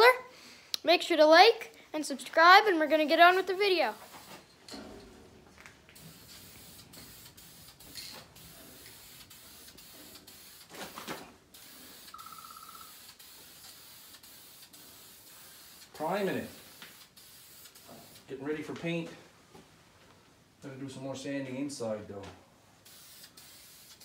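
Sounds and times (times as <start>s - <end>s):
spray paint hissing: 3.3s - 4.5s, 6.0s - 18.3s, 22.8s - 24.0s.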